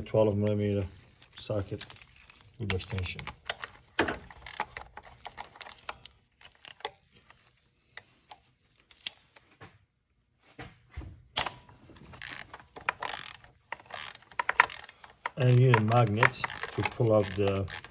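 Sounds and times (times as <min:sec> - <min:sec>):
metal tools clicking and clinking: 0:12.2 - 0:17.9.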